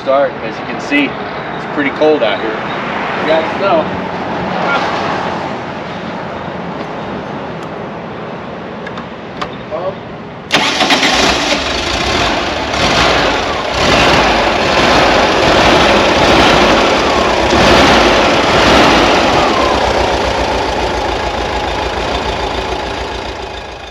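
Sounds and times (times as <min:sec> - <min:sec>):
car engine running: 0:10.6 - 0:23.9.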